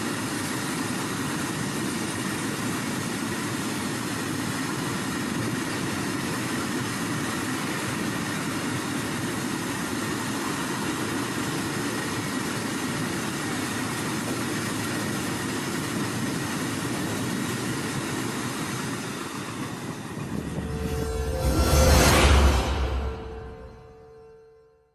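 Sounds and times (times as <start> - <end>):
freight train rumbling on rails: 1.7 - 24.4
thin high tone: 20.1 - 24.9.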